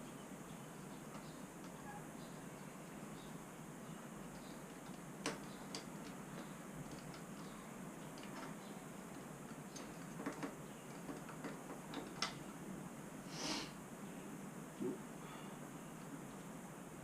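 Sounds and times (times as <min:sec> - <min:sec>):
light clicks and taps: 0:04.3 - 0:12.4
short hiss: 0:13.2 - 0:13.8.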